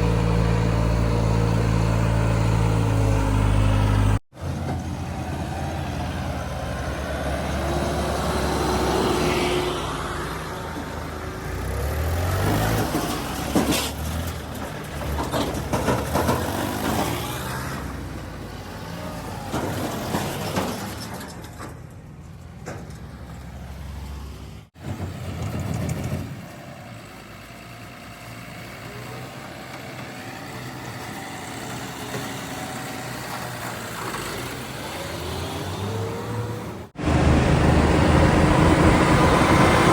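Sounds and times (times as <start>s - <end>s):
heavy diesel engines running: 0.0s - 39.9s
knocks and clatter: 12.3s - 17.5s, 19.4s - 23.6s.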